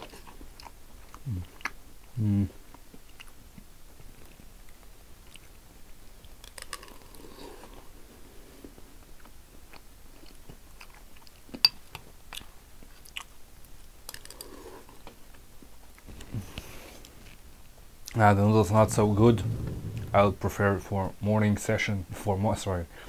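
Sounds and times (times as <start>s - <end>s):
man chewing noodles: 0.0s - 1.9s, 9.2s - 11.6s.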